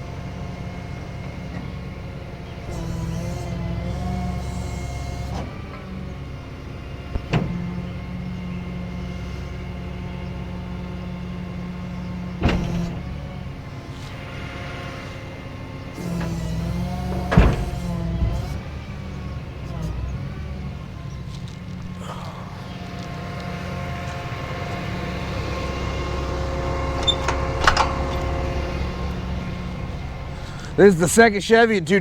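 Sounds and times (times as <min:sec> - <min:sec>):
hydraulic motor whine: 0:00.0 - 0:31.8
sharp metallic clunks: 0:12.4 - 0:30.9.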